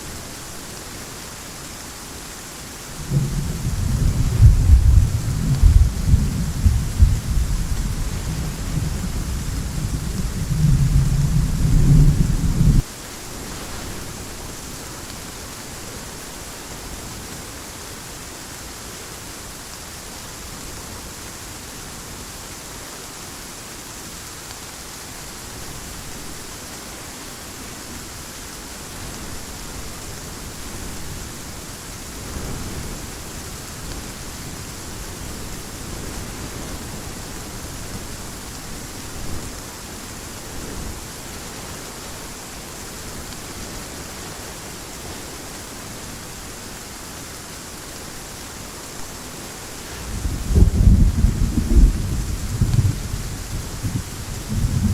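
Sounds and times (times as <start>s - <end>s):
heavy rain falling: 0.0s - 54.9s
low rumbles of thunder: 2.9s - 12.9s, 49.8s - 54.9s.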